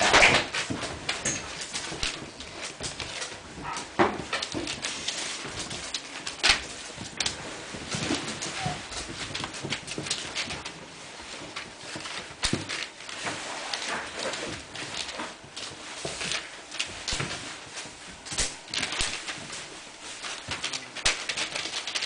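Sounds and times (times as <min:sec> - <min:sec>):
puppies scuffling: 0:00.0 - 0:22.0.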